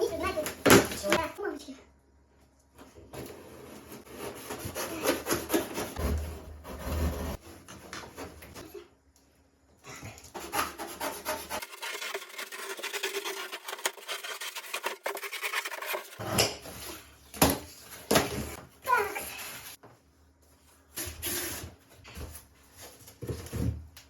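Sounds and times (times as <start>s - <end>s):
rubbing and rasping scrapes: 3.2s - 7.7s, 10.3s - 17.1s.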